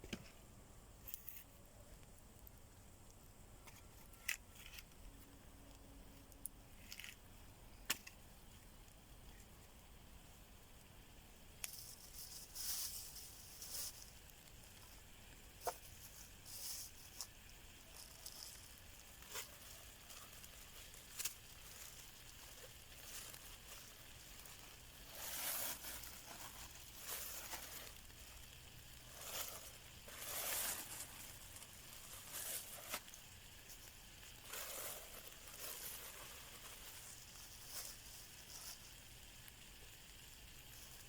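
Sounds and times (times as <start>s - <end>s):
campfire crackling pops: 1.8s - 41.0s
hissing rustling bursts: 11.6s - 39.6s.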